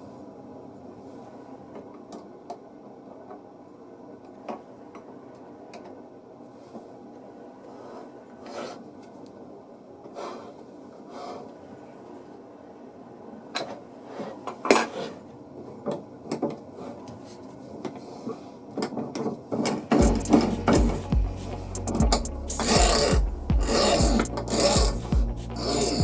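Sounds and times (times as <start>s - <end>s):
low steady hum: 19.9s - 26.0s
soft rubbing: 20.1s - 26.0s.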